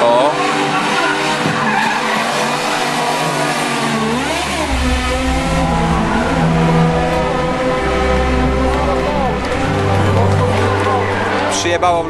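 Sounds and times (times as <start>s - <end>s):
car engines revving: 0.0s - 12.0s
deep low rumble: 4.0s - 11.3s.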